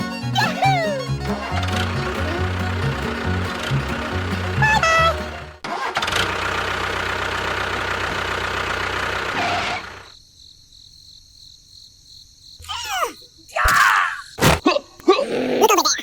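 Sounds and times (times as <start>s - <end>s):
pitched notes: 0.0s - 5.6s
engine running steadily: 0.0s - 10.1s.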